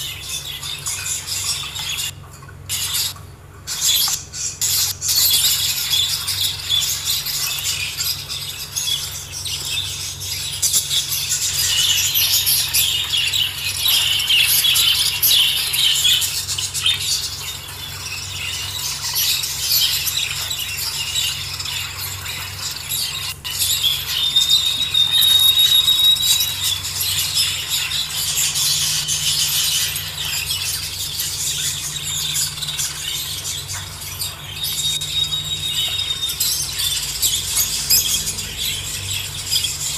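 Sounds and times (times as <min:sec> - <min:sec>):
budgerigars chirping: 0:00.0 - 0:39.9
low background hum: 0:00.0 - 0:39.9
steady whistle: 0:24.2 - 0:26.7, 0:34.7 - 0:36.5.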